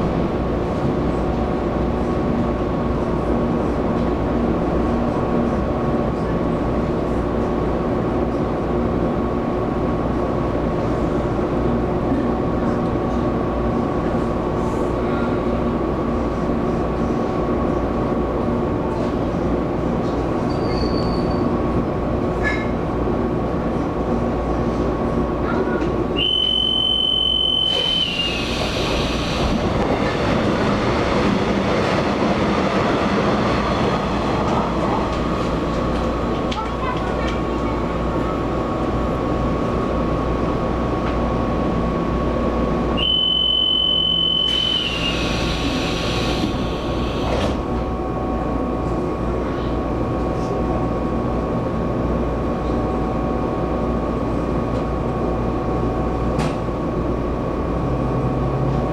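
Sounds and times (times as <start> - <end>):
train motor tone: 26.2 - 29.9, 43.0 - 47.6
train wheels rumbling on rail: 27.6 - 43.0, 44.0 - 58.9.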